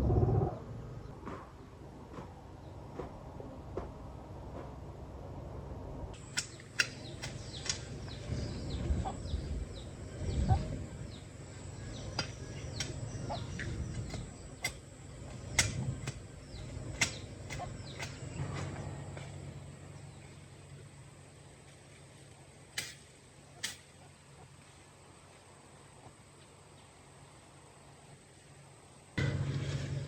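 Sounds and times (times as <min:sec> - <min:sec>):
sharp clicks: 0:06.2 - 0:07.8
chickens clucking and peeping: 0:06.8 - 0:14.8.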